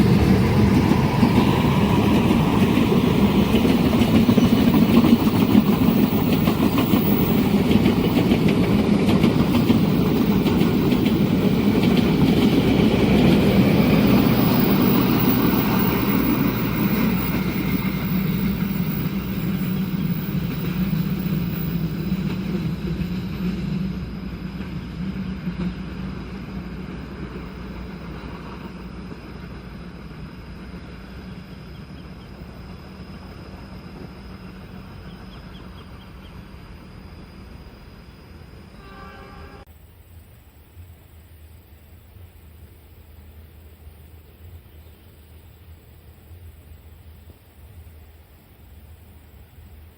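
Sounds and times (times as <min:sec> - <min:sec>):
passenger train rumbling over rails: 0:00.0 - 0:39.8.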